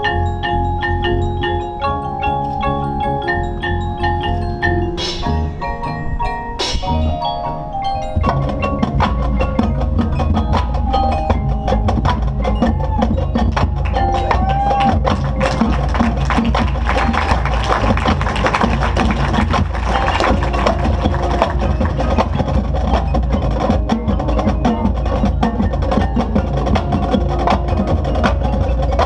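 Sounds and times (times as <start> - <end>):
mallet percussion notes: 0.0 - 29.0
marching band playing: 0.0 - 29.0
drums striking rapidly: 8.2 - 29.0.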